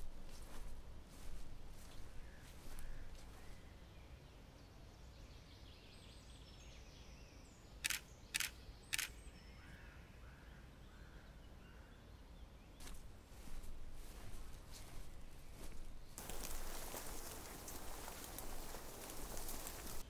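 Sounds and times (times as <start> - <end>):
camera shutter clicks: 7.8 - 9.2.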